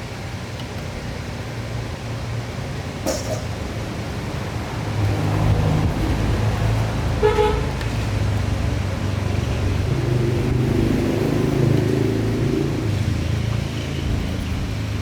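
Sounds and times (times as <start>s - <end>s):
vehicle horn toot: 7.2s - 7.8s.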